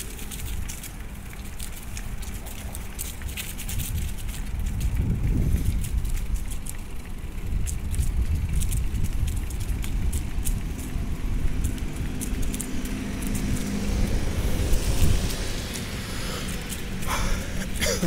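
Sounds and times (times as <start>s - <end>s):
bicycle clicks and rattles: 0.0s - 18.0s
wind rumbling on microphone: 0.0s - 18.0s.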